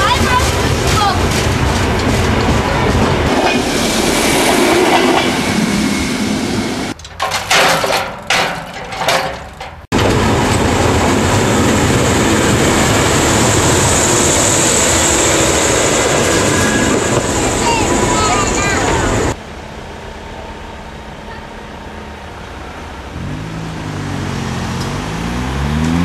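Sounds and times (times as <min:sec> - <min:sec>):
knocks and clatter: 0:00.0 - 0:03.7, 0:06.9 - 0:10.8
diesel locomotive running noise: 0:00.0 - 0:07.4, 0:08.2 - 0:26.0.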